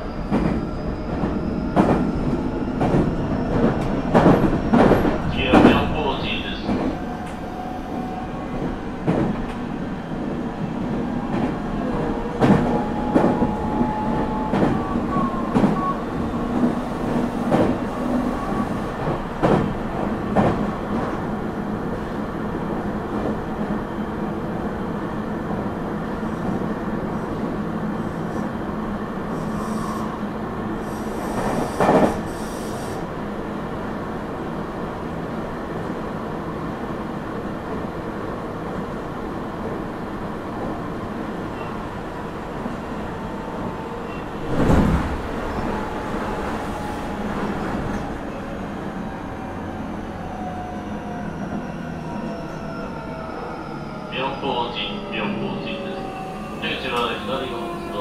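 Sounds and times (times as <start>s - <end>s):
train running hum: 0.0s - 58.0s.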